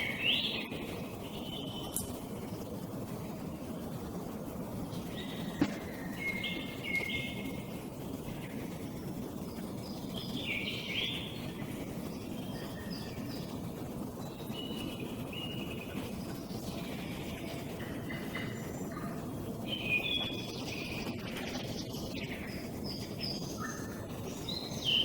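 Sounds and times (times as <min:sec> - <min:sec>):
low background rumble: 0:00.0 - 0:25.0
songbird singing: 0:00.0 - 0:25.0.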